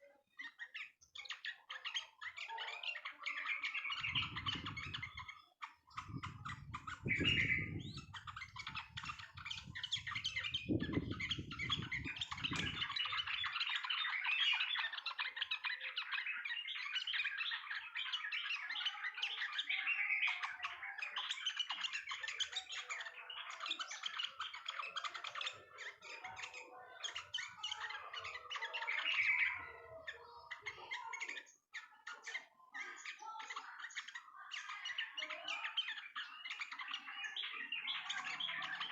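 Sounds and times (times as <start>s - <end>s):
bulbuls chattering song: 0.0s - 38.9s.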